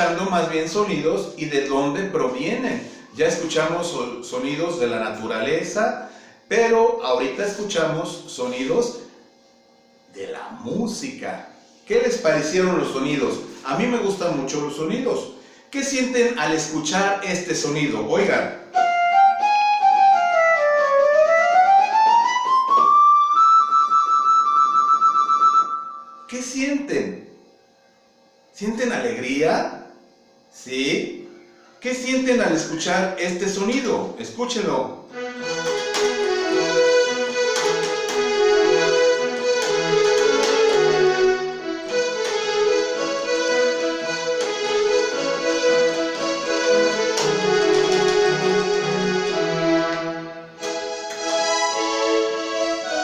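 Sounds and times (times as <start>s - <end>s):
repeating bass note: 35.1s - 52.3s
violins playing a melody: 35.1s - 53.0s.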